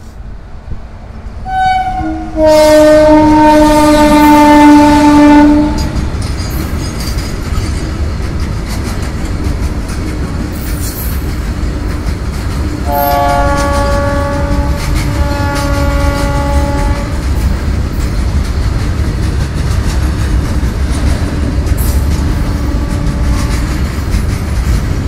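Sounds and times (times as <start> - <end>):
train horn chord: 1.4 - 6.0, 12.8 - 17.2, 21.7 - 23.8
wagons clattering over rail joints: 5.7 - 25.0.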